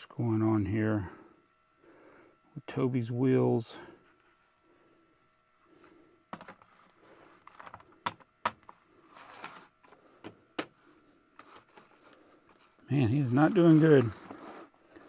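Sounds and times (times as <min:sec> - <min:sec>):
soft rustling: 0:10.8 - 0:15.0.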